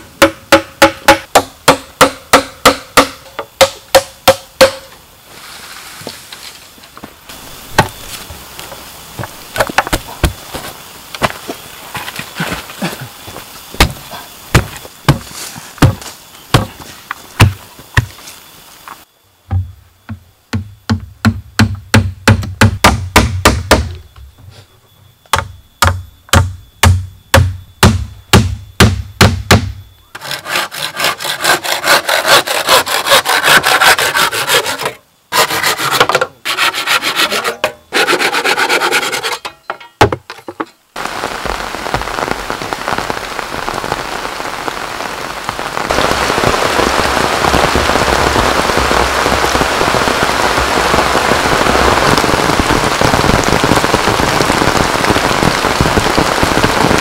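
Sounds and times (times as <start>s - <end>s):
rain hiss: 0.0s - 20.9s, 40.8s - 57.0s
saw cutting bamboo: 30.2s - 39.4s.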